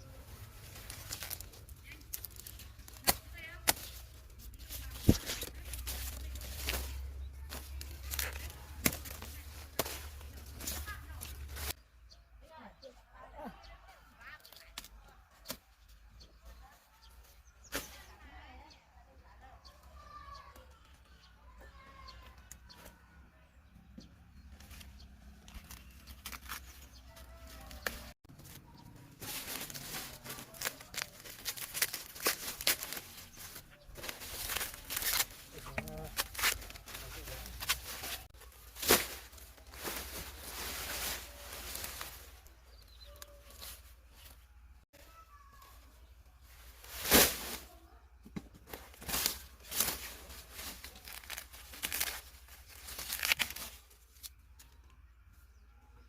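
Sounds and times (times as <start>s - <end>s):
plants snapping and rustling: 0.4s - 11.8s, 24.6s - 28.6s, 29.2s - 44.4s, 48.7s - 54.8s.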